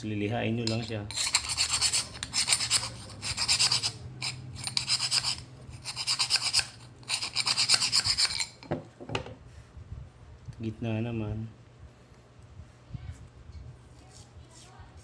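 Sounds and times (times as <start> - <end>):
sandpaper scraping metal: 0.8 - 8.6.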